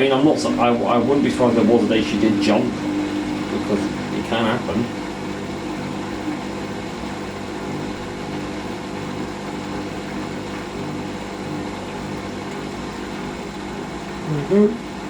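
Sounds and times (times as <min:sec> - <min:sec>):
washing machine motor humming: 0:00.0 - 0:15.0.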